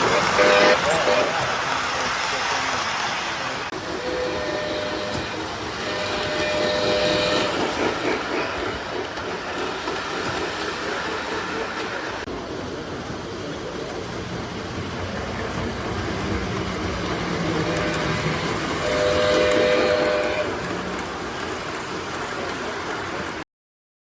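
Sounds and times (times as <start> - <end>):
model train rumbling on track: 0.0 - 23.4
steam whistle from speaker: 0.4 - 1.3, 4.0 - 7.7, 17.6 - 20.6.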